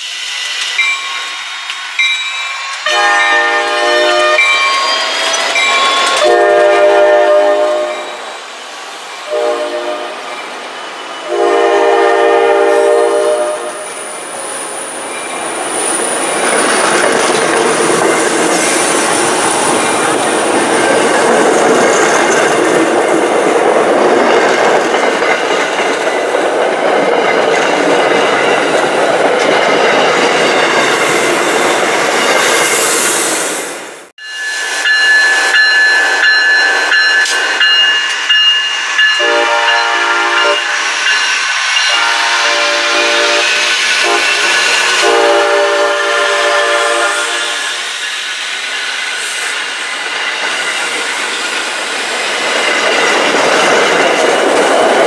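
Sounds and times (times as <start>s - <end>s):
train rumble: 0.0s - 55.0s
train horn: 2.8s - 4.8s, 5.9s - 8.2s, 9.3s - 10.3s, 11.2s - 13.9s, 39.2s - 40.7s, 41.9s - 47.9s
train wheels clicking over rail joints: 13.8s - 33.0s, 47.5s - 55.0s.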